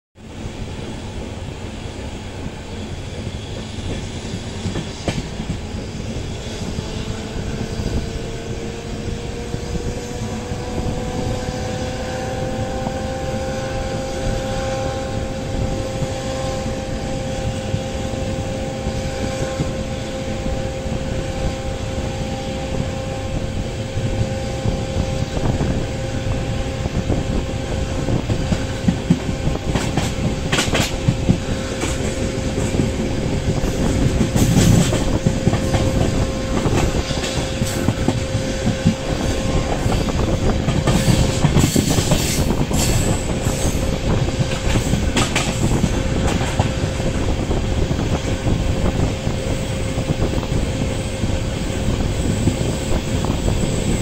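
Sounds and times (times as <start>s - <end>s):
train wheels rumbling on track: 0.2s - 54.0s
train whine: 0.2s - 54.0s
clacks over rail joints: 28.3s - 33.0s, 33.6s - 43.8s, 44.4s - 46.9s.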